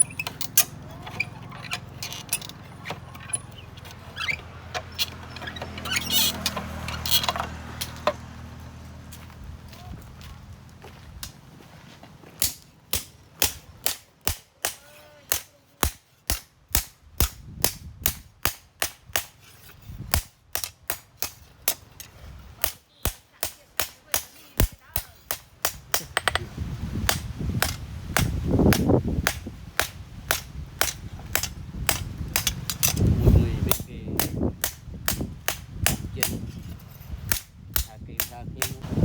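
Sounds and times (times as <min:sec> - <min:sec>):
hammer striking steel on anvil: 0:12.4 - 0:19.3, 0:33.7 - 0:36.6, 0:37.3 - 0:38.8.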